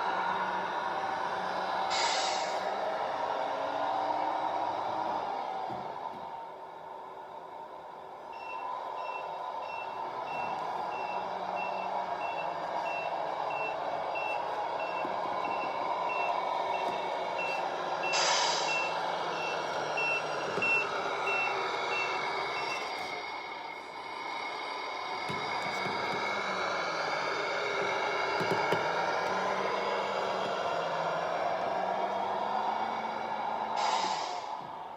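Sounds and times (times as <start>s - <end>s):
diesel engine running: 0.0s - 34.9s
air brake hiss: 1.9s - 2.8s, 18.1s - 19.0s, 33.8s - 34.6s
reversing beep: 8.3s - 23.1s.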